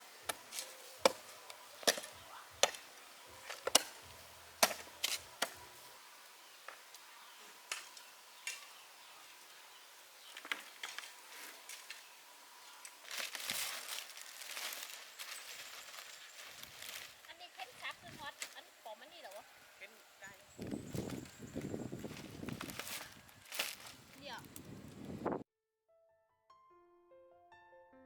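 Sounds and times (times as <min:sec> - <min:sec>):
blade chopping wood: 0:00.3 - 0:05.6
rustling: 0:10.3 - 0:25.3.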